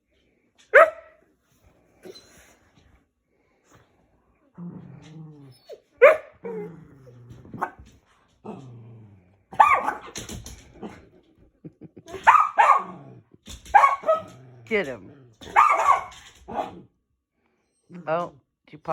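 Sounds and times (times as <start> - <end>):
dog barking: 0.7 - 1.2, 6.0 - 6.7, 7.6 - 7.8, 9.5 - 10.2, 12.2 - 13.0, 13.7 - 14.3, 15.4 - 16.9
dog growling: 4.4 - 9.6, 12.8 - 13.4, 14.0 - 15.6.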